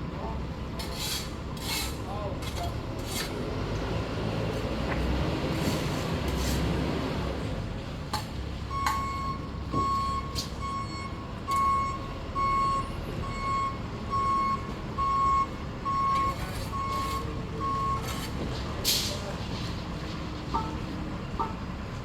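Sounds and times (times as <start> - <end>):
vehicle backup alarm beeping: 8.7 - 18.4.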